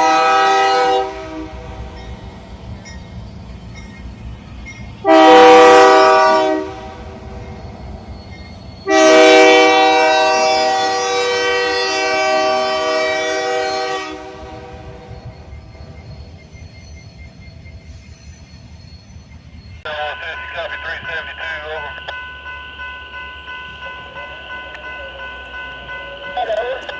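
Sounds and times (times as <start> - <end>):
locomotive air horn: 0.0 - 1.9, 5.0 - 7.5, 8.8 - 15.1
train rumble: 0.0 - 26.9.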